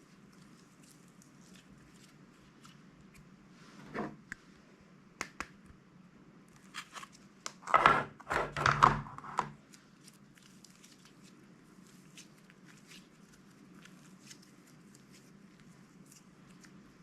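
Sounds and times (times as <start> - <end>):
slime crinkling and crunching: 9.6 - 16.9.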